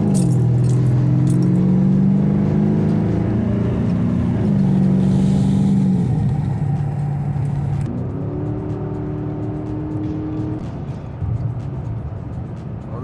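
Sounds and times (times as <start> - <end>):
car engine running: 0.0 - 7.9.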